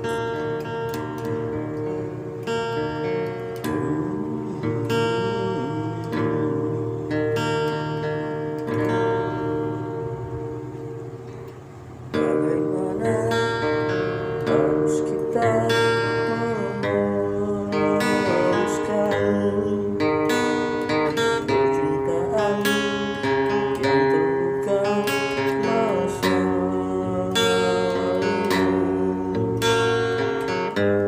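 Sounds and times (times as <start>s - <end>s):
out of tune guitar strumming: 0.0s - 31.0s.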